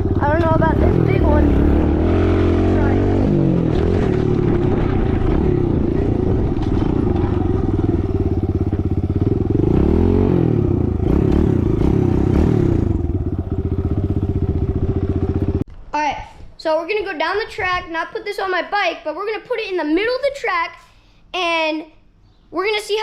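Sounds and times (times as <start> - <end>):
dirt bike engine running: 0.0 - 15.6.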